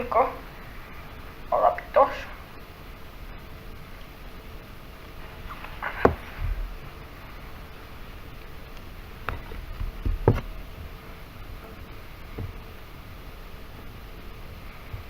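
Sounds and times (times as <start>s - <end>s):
faint rustling: 0.0s - 15.0s.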